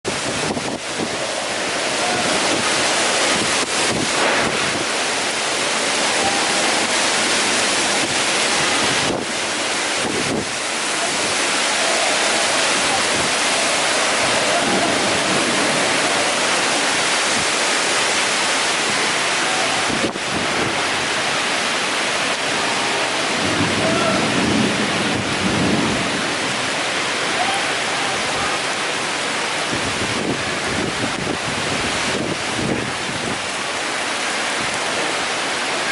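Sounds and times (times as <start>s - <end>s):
wind buffeting microphone: 0.0s - 21.5s, 29.6s - 33.6s
heavy rain: 0.0s - 35.9s.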